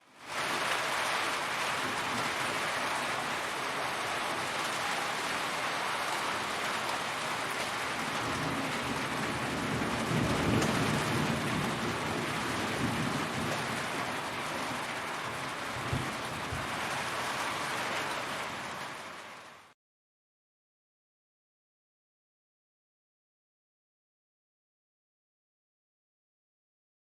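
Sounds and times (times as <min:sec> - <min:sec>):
heavy rain hissing: 0:00.0 - 0:19.7.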